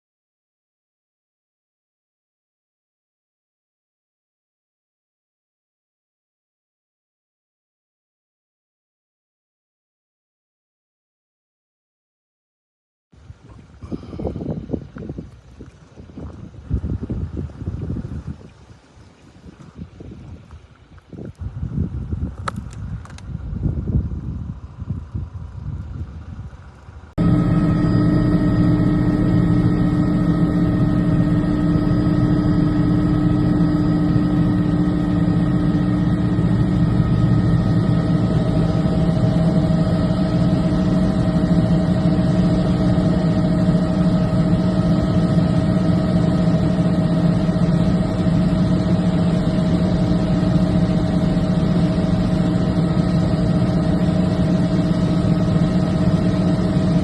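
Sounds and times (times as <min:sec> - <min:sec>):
vehicle engine idling: 0:26.6 - 0:56.8.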